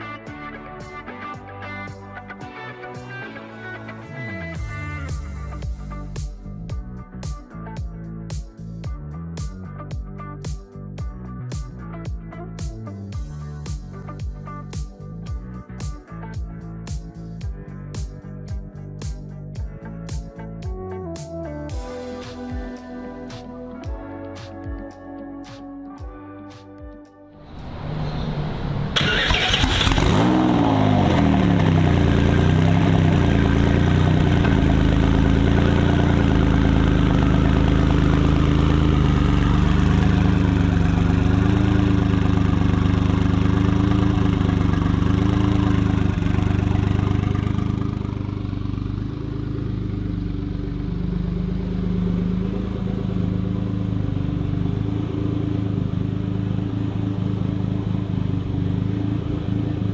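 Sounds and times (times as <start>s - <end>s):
car engine starting and idling: 27.4s - 59.9s.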